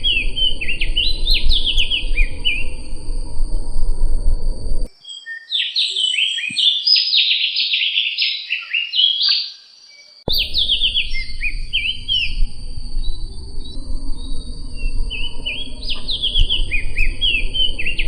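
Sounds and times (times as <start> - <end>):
low background rumble: 0.0 - 4.9, 10.3 - 18.0
songbird singing sliding whistles: 0.0 - 9.6, 10.2 - 18.0.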